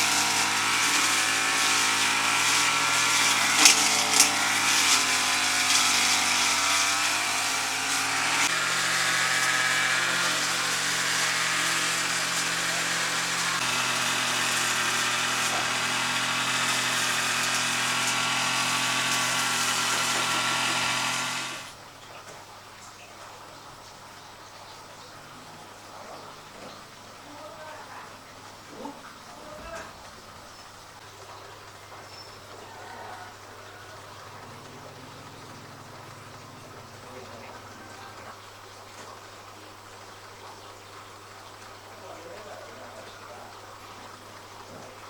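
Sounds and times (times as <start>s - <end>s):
motor running: 0.0s - 21.8s.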